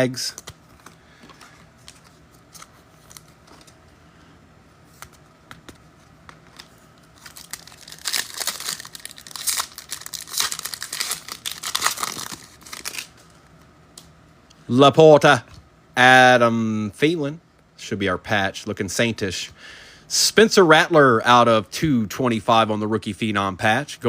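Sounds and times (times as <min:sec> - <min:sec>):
foil wrapper tearing and crinkling: 0:07.2 - 0:13.3.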